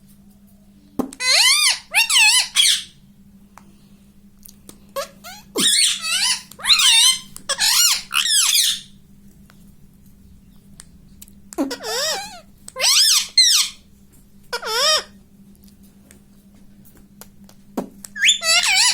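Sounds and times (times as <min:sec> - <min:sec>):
parrot squawking: 0:01.2 - 0:03.0, 0:05.0 - 0:08.9, 0:11.6 - 0:13.8, 0:14.5 - 0:15.2, 0:18.2 - 0:18.9.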